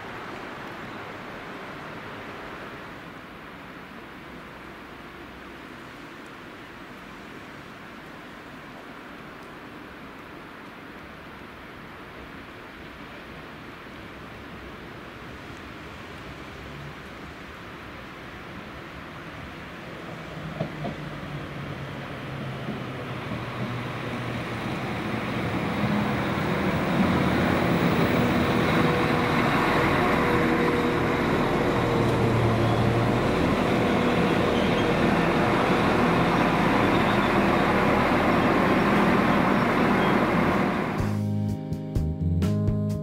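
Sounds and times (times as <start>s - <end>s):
wheel and rail rumble: 0.0s - 41.2s
diesel train engine hum: 11.2s - 42.9s
guitar music: 41.0s - 43.0s.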